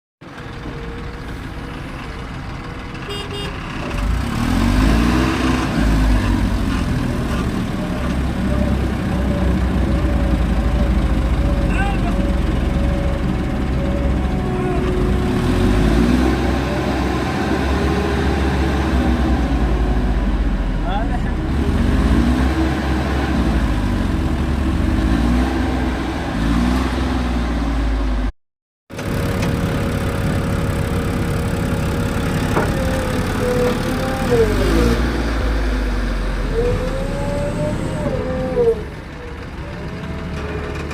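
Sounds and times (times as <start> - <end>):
heavy diesel engine running: 0.2 - 28.3, 28.9 - 40.9.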